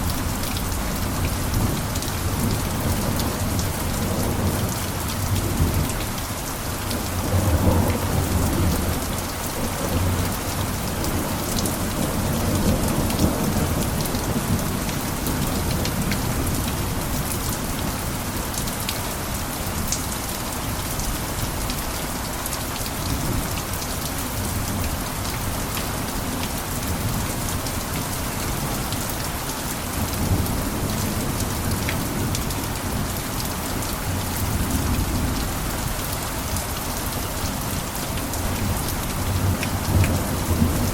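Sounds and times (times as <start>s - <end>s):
heavy rain on a roof: 0.0s - 40.9s.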